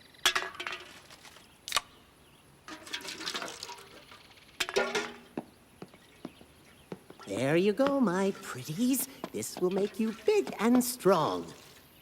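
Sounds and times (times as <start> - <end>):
cartoon liquid pouring and sloshing: 2.7 - 4.1, 9.4 - 12.0
liquid gurgle: 9.7 - 12.0.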